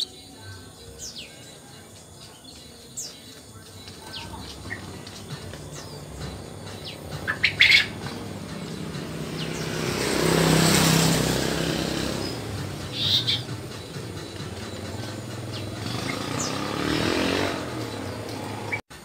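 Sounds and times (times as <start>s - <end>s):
bird giving high chirps: 0.0s - 18.8s
passing vehicle hum: 0.0s - 19.0s.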